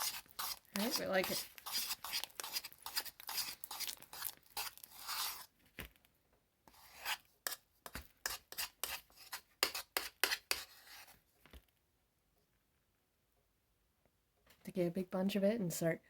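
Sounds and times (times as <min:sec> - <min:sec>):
sharp sticky slime sounds: 0:00.0 - 0:05.5
slime being stirred and scraped: 0:00.0 - 0:05.7, 0:06.7 - 0:11.3.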